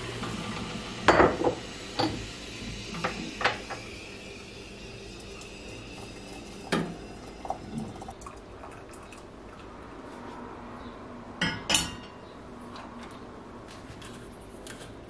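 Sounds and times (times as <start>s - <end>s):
dishes and cutlery clinking: 11.4s - 12.2s.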